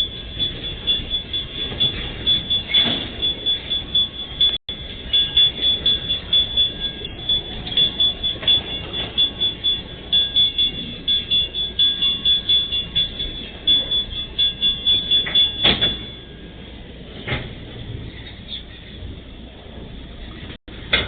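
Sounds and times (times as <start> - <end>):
high-pitched ringing tone: 0.0 - 16.8.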